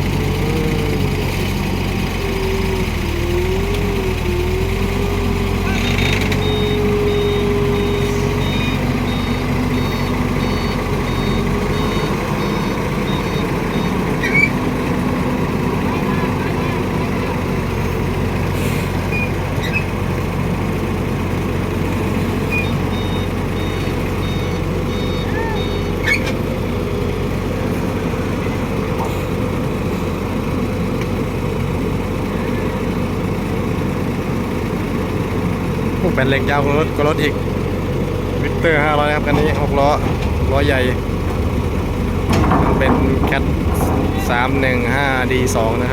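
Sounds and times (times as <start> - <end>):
diesel engine running: 0.0 - 45.9
backup alarm beeping: 6.0 - 14.1, 22.6 - 26.0
high squeak: 14.2 - 14.6, 24.9 - 26.4.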